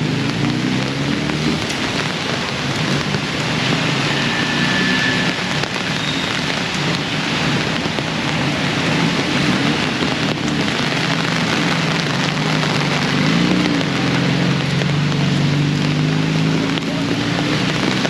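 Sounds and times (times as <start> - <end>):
heavy rain on street: 0.0 - 18.0.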